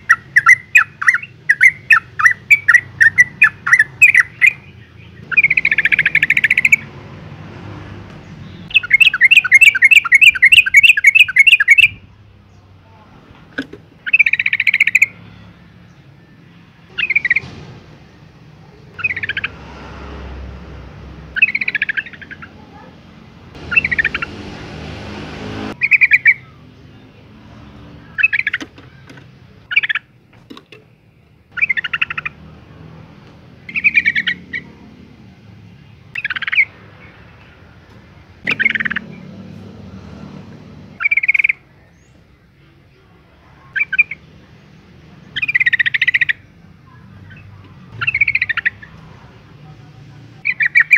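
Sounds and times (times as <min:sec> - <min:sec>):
bird chattering calls: 0:00.0 - 0:06.9, 0:08.4 - 0:12.0, 0:14.0 - 0:15.2, 0:16.9 - 0:17.5, 0:18.9 - 0:19.6, 0:21.4 - 0:22.9, 0:23.6 - 0:24.5, 0:25.8 - 0:26.5, 0:28.2 - 0:30.1, 0:31.5 - 0:32.5, 0:33.6 - 0:34.8, 0:36.2 - 0:37.1, 0:38.4 - 0:39.2, 0:41.0 - 0:42.1, 0:43.7 - 0:44.3, 0:45.3 - 0:49.0, 0:50.4 - 0:50.9.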